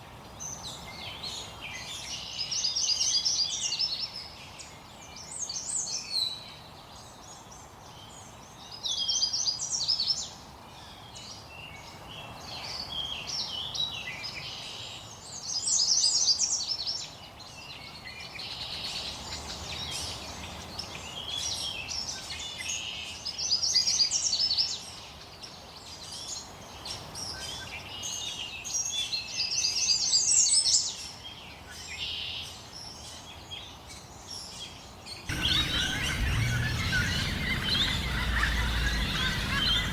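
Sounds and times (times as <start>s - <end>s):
songbirds singing: 25.8s - 39.9s.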